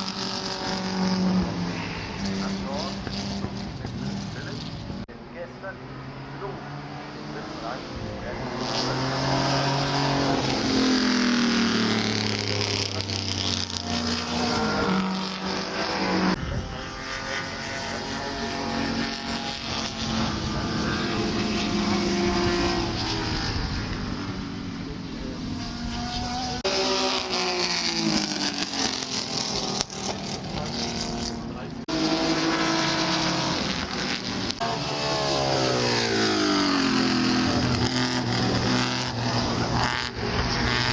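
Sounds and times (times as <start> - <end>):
racing cars passing at speed: 0.0 - 40.9.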